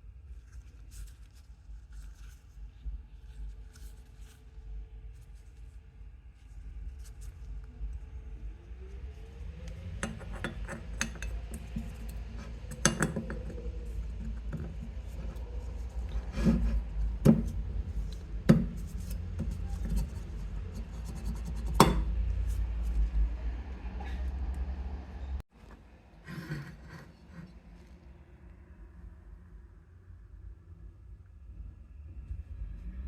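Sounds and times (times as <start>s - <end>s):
steady low rumble: 2.7s - 25.4s.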